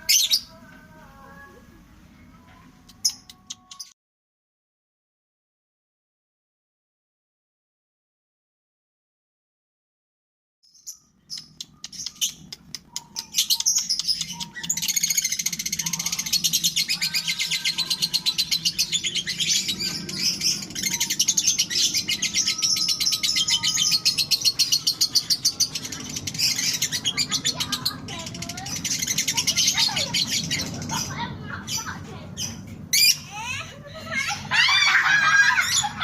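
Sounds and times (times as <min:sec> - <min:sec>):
lovebird fast high-pitched chatter: 0:11.4 - 0:33.5.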